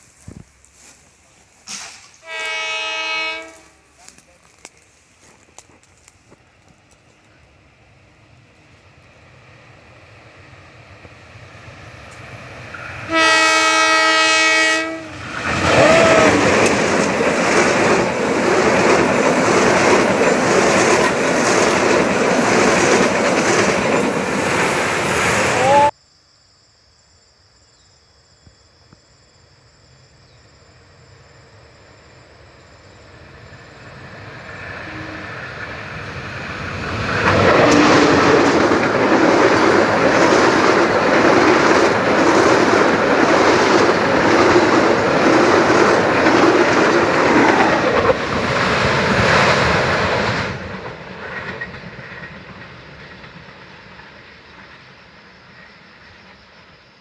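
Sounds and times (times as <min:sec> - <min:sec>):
passenger train rumbling: 0:00.0 - 0:25.9, 0:29.8 - 0:57.0
wheels clickety-clack on rail joints: 0:04.0 - 0:07.4, 0:15.2 - 0:25.2, 0:34.0 - 0:56.5.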